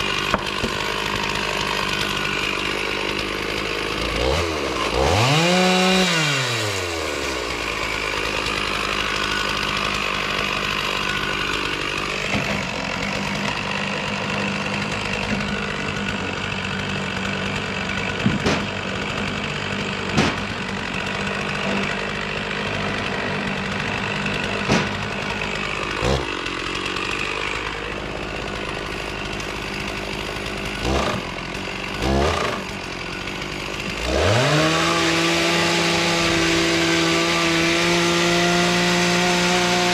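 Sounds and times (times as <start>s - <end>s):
chainsaw engine revving: 0.0s - 39.9s
sharp knocks: 18.2s - 18.7s, 20.1s - 20.5s, 24.6s - 25.1s.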